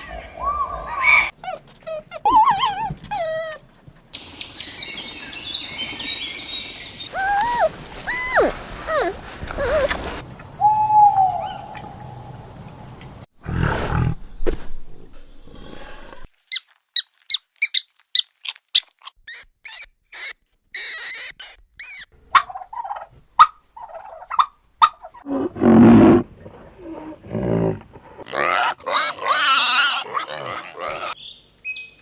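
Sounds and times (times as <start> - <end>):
animal high squeaks: 16.5 - 22.1.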